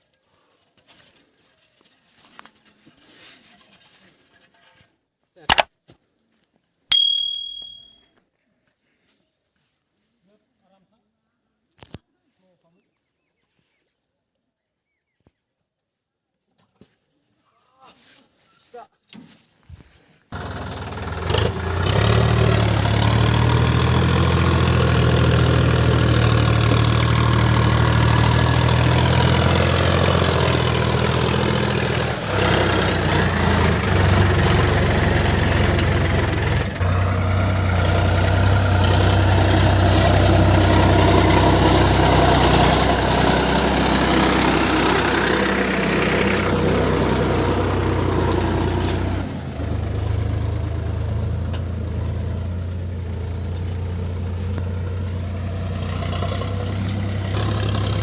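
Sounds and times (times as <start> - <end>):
tractor diesel engine running: 20.3 - 58.0.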